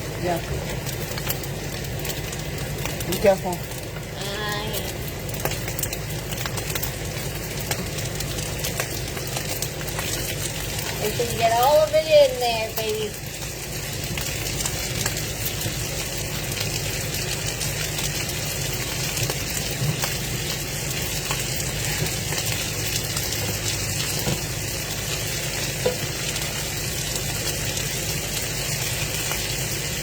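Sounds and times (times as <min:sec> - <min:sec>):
food sizzling in a frying pan: 0:00.0 - 0:30.0.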